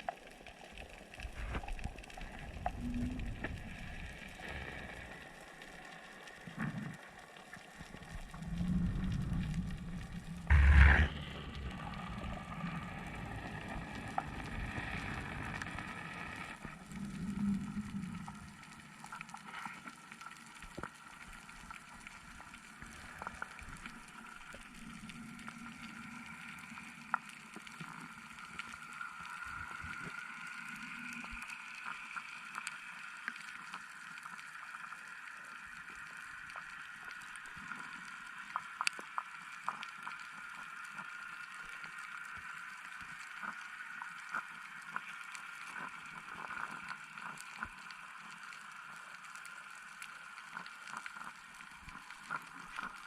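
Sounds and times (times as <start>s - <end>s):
sharp clicks and crackles: 0.0s - 53.0s
underwater drone: 0.0s - 53.0s
low hum: 8.1s - 18.7s.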